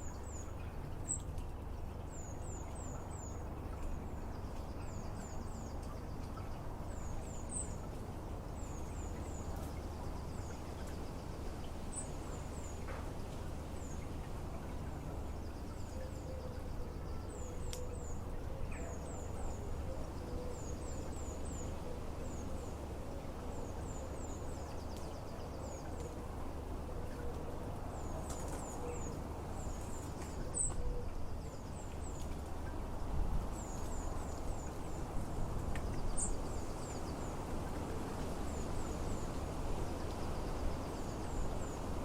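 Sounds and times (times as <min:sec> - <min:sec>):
songbird calls: 0:14.7 - 0:32.8.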